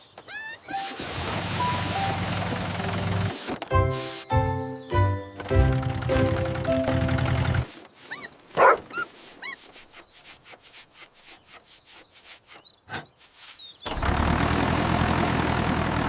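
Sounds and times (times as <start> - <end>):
puppy yipping and barking: 8.1 - 9.6.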